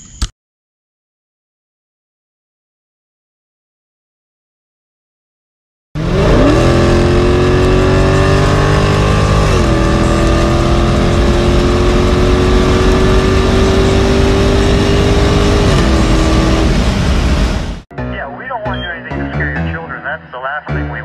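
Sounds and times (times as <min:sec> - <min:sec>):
car engine at full throttle: 0:06.0 - 0:17.8.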